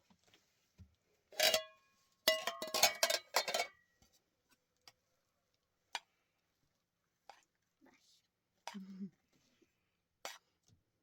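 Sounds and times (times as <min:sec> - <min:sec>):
dishes clattering: 0:01.4 - 0:01.7, 0:02.3 - 0:03.7.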